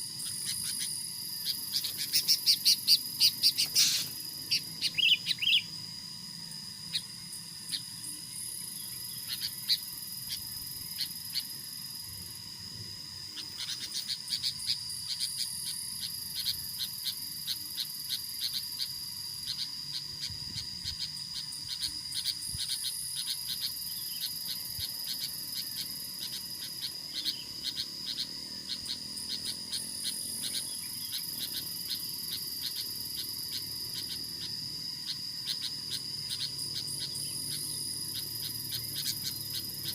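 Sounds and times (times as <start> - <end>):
insect buzz: 0.0 - 39.9
insect clicking calls: 0.0 - 39.9
insect trill: 0.0 - 39.9.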